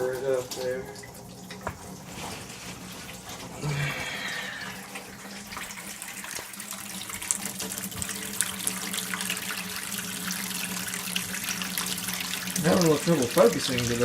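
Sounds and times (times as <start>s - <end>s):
faucet running into sink: 3.8s - 14.0s.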